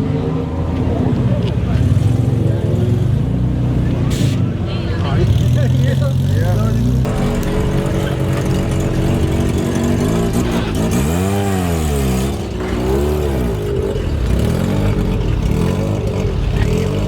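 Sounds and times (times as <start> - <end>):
car engine revving: 5.1 - 17.0.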